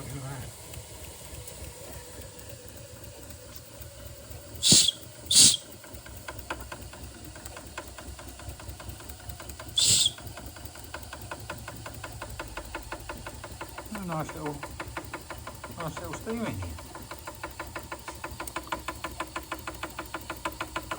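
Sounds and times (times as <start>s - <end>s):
toy steam engine ticking: 0.0s - 20.9s
sharp hisses of escaping steam: 4.6s - 5.6s, 9.8s - 10.2s.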